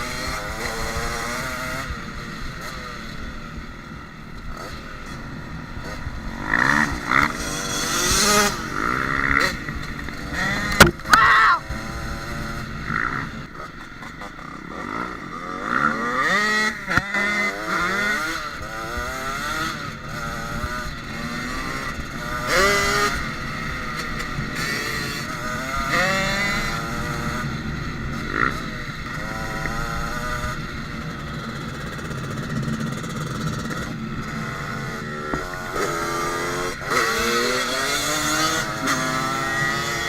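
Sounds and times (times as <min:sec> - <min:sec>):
dirt bike engine revving: 0:00.0 - 0:40.0
sharp knock: 0:10.8 - 0:11.2.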